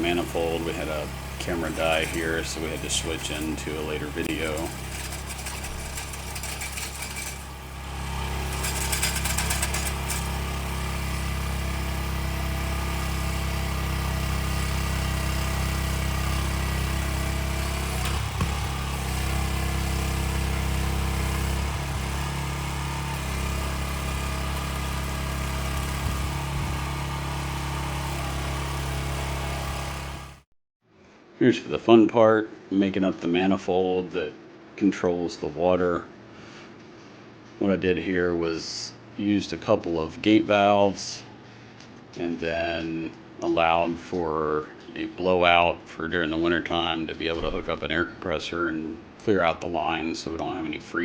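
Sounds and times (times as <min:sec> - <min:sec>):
trenching machine engine droning: 0:00.0 - 0:30.4.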